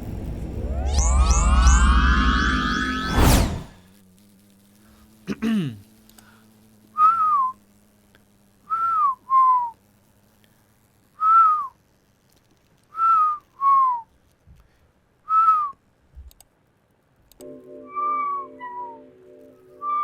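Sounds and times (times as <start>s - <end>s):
faint clicks: 6.0s - 6.6s, 16.2s - 17.5s
person whistling short notes: 7.0s - 7.6s, 8.7s - 9.7s, 11.2s - 11.7s, 13.0s - 14.1s, 15.3s - 15.8s, 17.9s - 19.1s, 19.7s - 20.0s.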